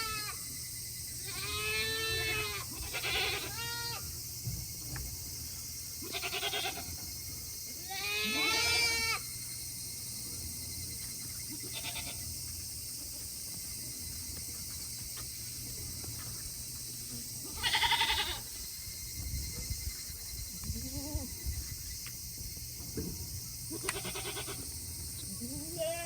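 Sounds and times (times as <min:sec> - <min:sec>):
goats bleating: 0:01.3 - 0:04.0, 0:06.0 - 0:07.0, 0:07.8 - 0:09.2, 0:11.6 - 0:12.2, 0:17.5 - 0:18.5, 0:23.7 - 0:24.7, 0:25.4 - 0:26.0.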